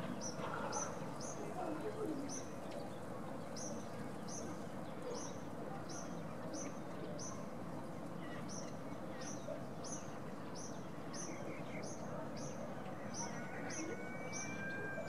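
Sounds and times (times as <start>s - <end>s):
bird short high call: 13.0s - 15.0s.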